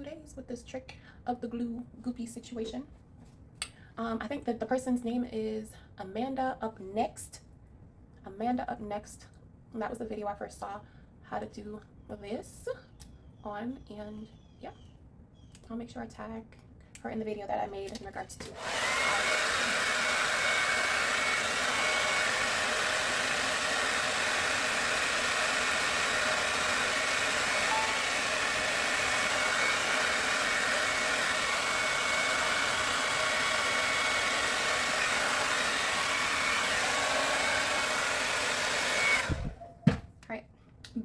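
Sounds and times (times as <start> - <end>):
hair dryer blowing: 18.4 - 39.6.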